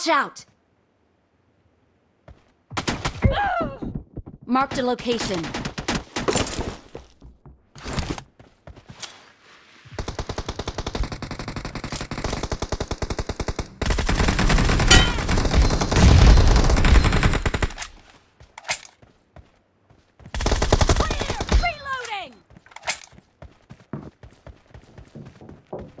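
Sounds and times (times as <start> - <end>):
video game automatic gunfire: 10.0 - 17.8, 20.4 - 21.8.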